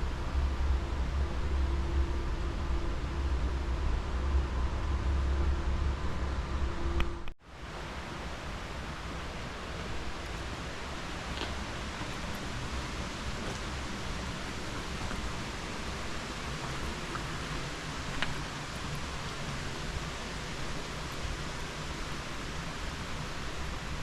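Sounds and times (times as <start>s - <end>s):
rushing water: 7.4s - 24.0s.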